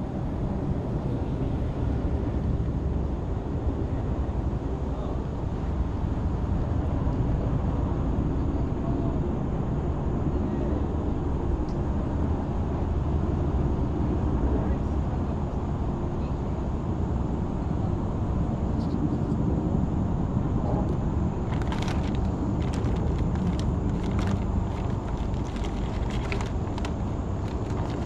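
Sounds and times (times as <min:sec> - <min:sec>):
low rumble: 0:21.3 - 0:28.0
sharp clicks and rattles: 0:21.4 - 0:28.0.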